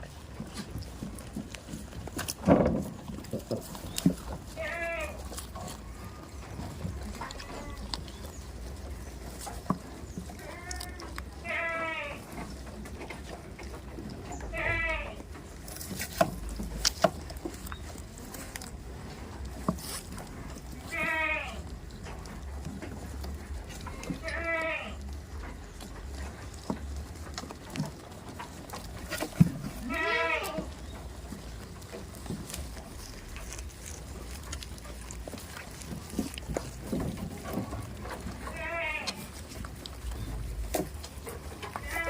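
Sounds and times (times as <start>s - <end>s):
faint clicks and rustles: 0.0s - 42.0s
goat bleating: 4.5s - 8.4s, 10.3s - 12.6s, 14.3s - 15.5s, 20.6s - 21.8s, 23.7s - 25.3s, 28.5s - 30.9s, 31.6s - 40.3s, 41.6s - 42.0s.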